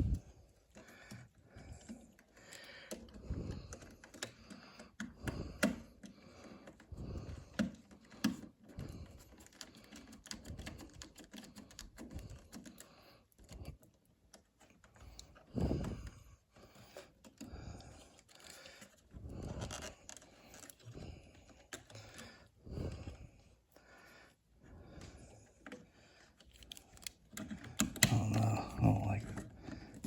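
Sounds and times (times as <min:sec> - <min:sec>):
wires and screws clicking: 0:01.8 - 0:06.9, 0:25.5 - 0:28.4.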